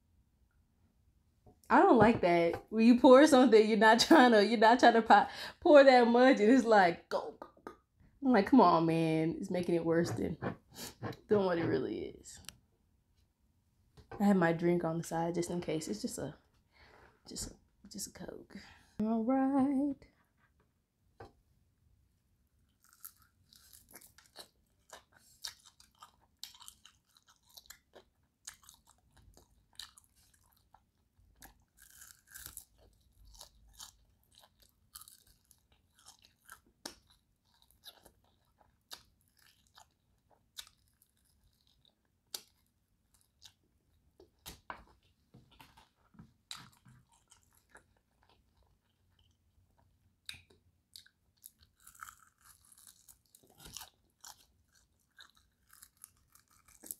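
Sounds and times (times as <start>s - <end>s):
quiet chewing: 22.6s - 56.9s
crunching crispy chicken skin: 22.8s - 30.8s, 31.4s - 40.0s, 40.6s - 43.6s, 50.4s - 56.9s.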